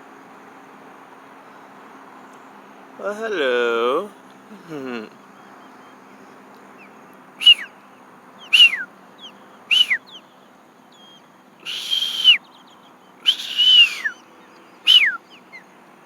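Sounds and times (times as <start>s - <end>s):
osprey whistled calls: 6.8s - 7.8s, 8.4s - 15.7s.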